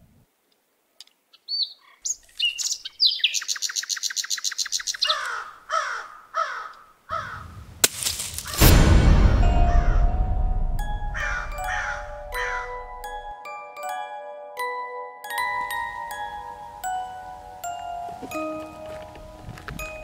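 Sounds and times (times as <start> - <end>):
birds chirping: 1.3 - 7.7, 11.0 - 13.3
sharp crack: 7.8 - 12.8
loud deep noisy swell: 8.6 - 13.0.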